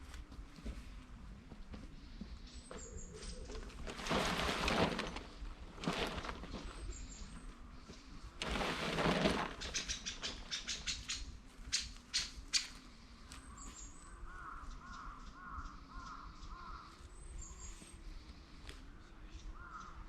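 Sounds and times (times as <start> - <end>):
bird calling: 9.4 - 18.4.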